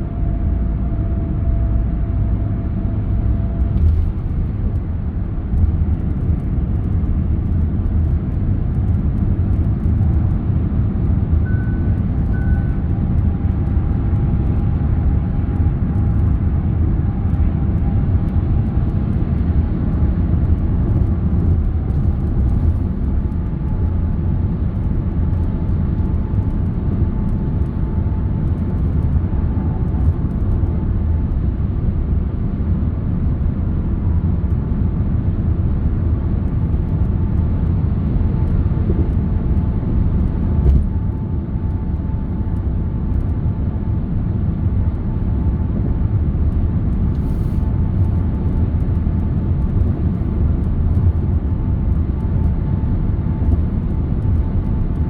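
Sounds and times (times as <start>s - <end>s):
car road and engine rumble: 0.0s - 55.0s
faint whine: 11.2s - 16.3s.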